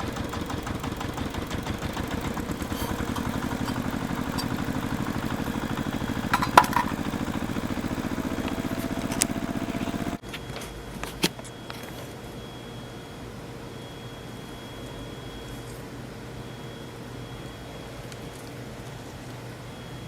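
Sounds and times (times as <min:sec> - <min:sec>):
small engine running: 0:00.0 - 0:10.2.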